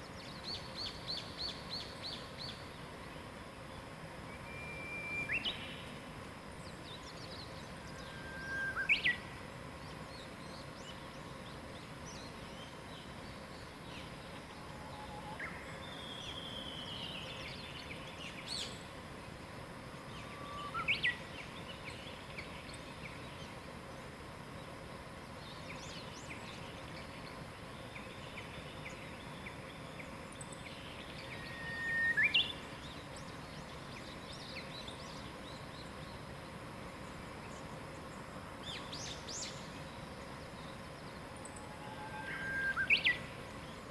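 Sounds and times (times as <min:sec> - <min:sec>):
outdoor hiss: 0:00.0 - 0:43.9
whistled bird song: 0:04.2 - 0:06.0, 0:06.6 - 0:09.3, 0:10.0 - 0:18.8, 0:20.1 - 0:23.5, 0:25.4 - 0:36.2, 0:38.6 - 0:43.9
bird calls and chirps: 0:04.3 - 0:06.0, 0:06.6 - 0:18.9, 0:20.1 - 0:23.6, 0:25.4 - 0:43.9.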